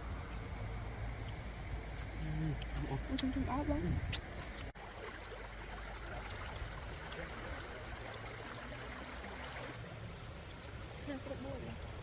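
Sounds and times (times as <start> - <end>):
running water trickling: 0.0 - 12.0.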